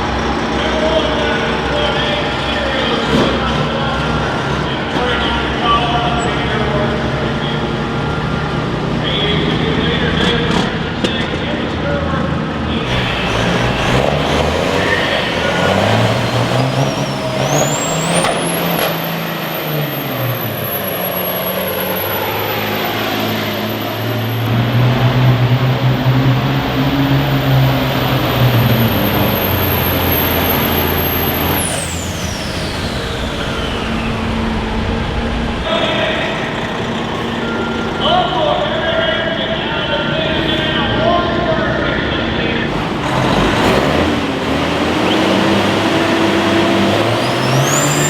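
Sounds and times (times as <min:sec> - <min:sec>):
engine running hard under load: 0:00.0 - 0:48.0
shrill high-pitched whine: 0:12.8 - 0:39.9, 0:45.1 - 0:48.0.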